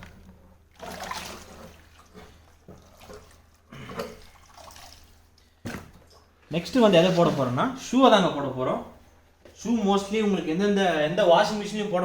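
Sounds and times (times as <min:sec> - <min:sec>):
water splashing in washing machine: 0:00.0 - 0:07.6.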